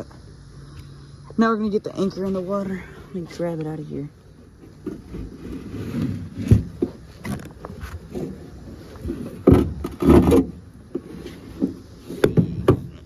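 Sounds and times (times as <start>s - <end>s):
rope scraping: 4.6s - 13.0s
anchor banging against boat hull: 9.1s - 12.9s.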